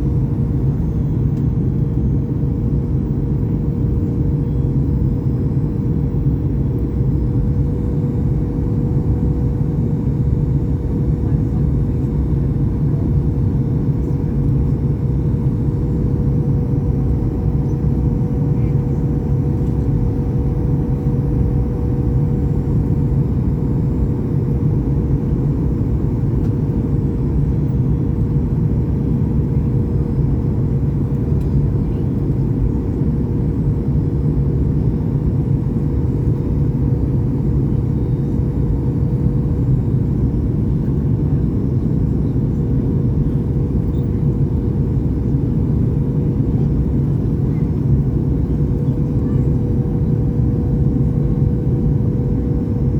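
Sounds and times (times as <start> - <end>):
steady hum tone: 0.0 - 32.0
low rumble of jet engines: 0.0 - 52.9.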